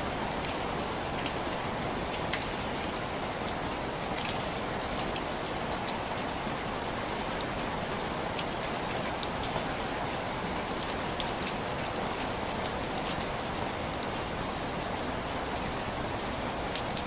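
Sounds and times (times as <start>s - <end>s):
rain tapping on window glass: 0.1s - 17.0s.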